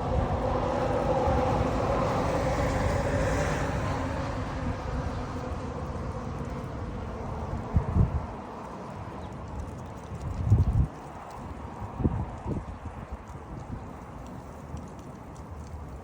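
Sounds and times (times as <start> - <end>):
vehicle passing by: 0.0 - 8.0
wind rumble on microphone: 0.0 - 16.0.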